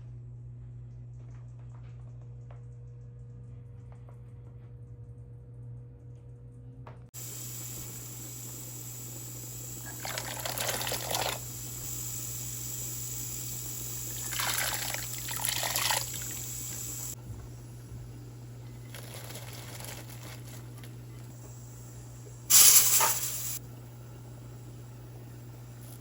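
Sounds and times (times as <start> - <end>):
water running in kitchen: 7.2 - 26.0.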